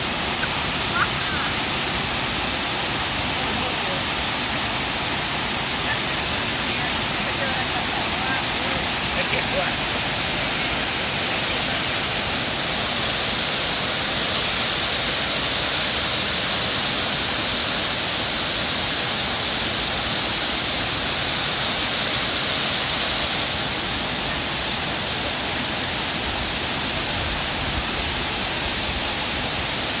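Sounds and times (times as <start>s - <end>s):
waterfall pouring and splashing: 0.0s - 30.0s.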